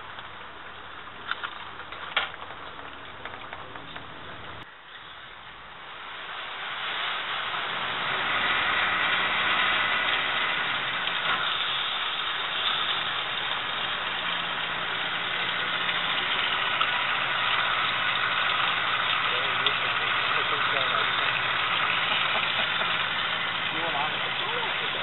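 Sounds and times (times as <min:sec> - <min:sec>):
low motor hum: 0:00.0 - 0:04.7, 0:07.2 - 0:25.0
water spraying in dishwasher: 0:06.4 - 0:25.0.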